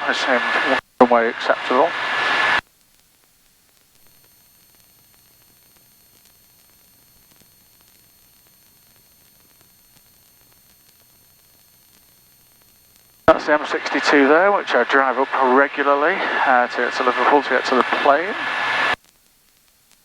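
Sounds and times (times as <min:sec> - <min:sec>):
person speaking: 0:00.0 - 0:02.0, 0:13.3 - 0:19.0
faint electronic hiss: 0:00.0 - 0:20.0
thin high-pitched whines: 0:13.3 - 0:19.0.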